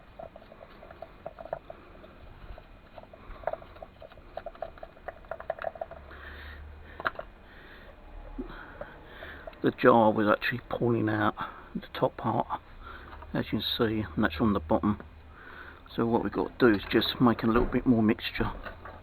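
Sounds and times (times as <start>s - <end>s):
small clicks and scratches: 0.0s - 11.0s, 16.4s - 19.0s.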